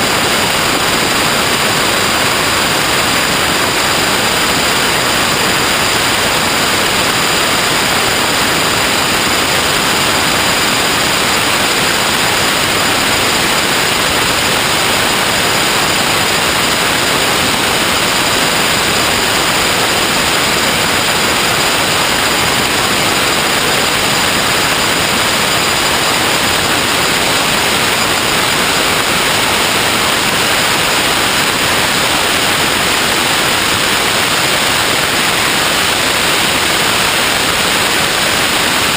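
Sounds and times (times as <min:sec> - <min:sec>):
static hiss: 0:00.0 - 0:38.9.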